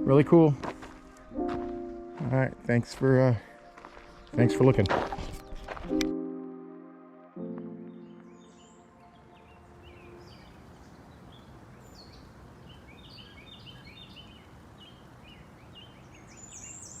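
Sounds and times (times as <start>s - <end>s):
music: 0.0s - 10.8s
small birds chirping: 7.8s - 17.0s
steady background hiss: 9.5s - 17.0s.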